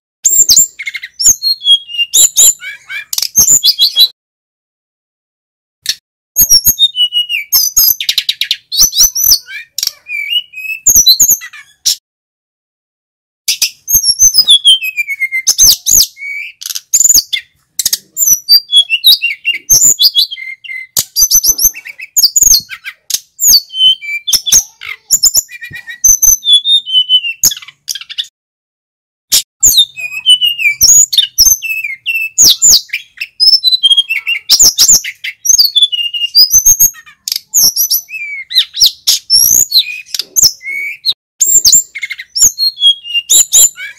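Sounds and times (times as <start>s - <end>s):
flycatcher singing: 29.6s - 43.9s.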